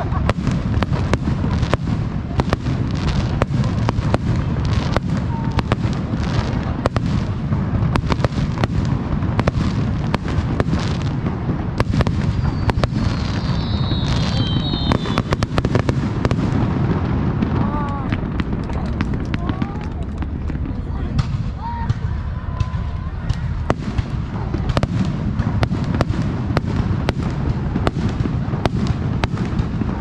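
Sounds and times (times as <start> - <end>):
high whistling tone: 12.3 - 15.3
low rumble: 17.3 - 25.9
firework shell bursts and cracks: 17.9 - 22.0.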